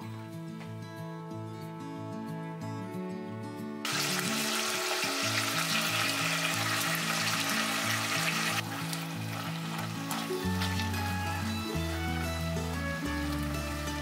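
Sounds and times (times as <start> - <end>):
meat sizzling in a pot: 3.9 - 14.0.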